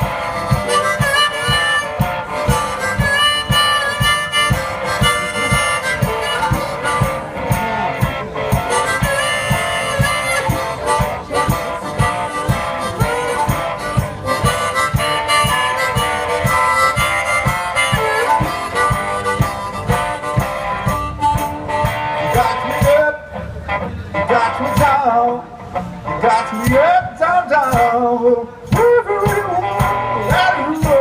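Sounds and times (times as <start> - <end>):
harmonica solo: 0.0 - 23.0
low drum beat: 0.0 - 23.0
guitar: 0.0 - 31.0.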